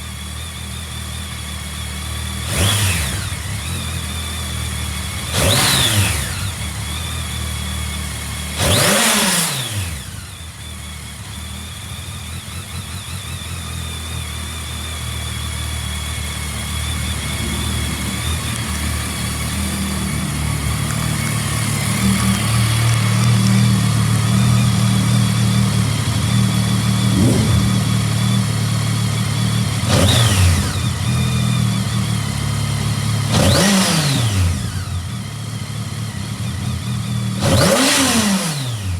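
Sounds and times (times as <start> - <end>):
motorcycle engine idling: 0.0 - 38.0.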